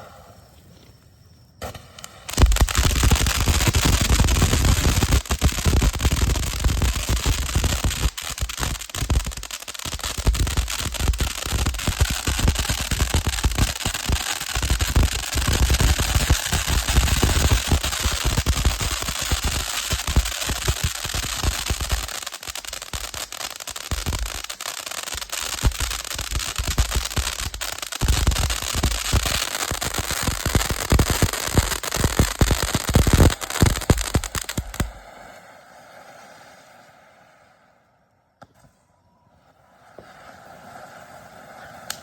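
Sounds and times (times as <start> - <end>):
firework rushing hiss: 1.6 - 38.1, 39.5 - 42.0
fountain firework crackling: 2.2 - 36.2, 39.9 - 42.0.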